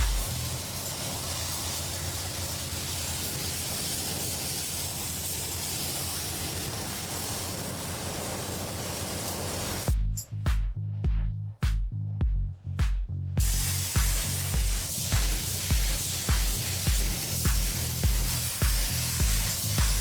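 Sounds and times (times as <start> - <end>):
music with beats: 0.0 - 0.6, 9.9 - 20.0
steady hiss: 0.0 - 10.0, 13.4 - 20.0.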